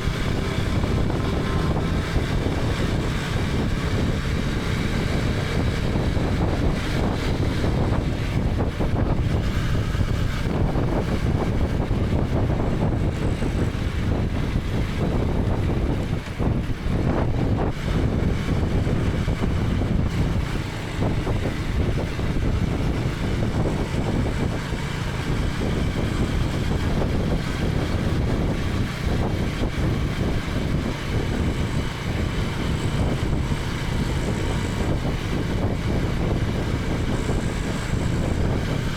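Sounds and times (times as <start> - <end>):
motorcycle engine running: 0.0 - 38.9
wind rushing over camera: 0.0 - 38.9.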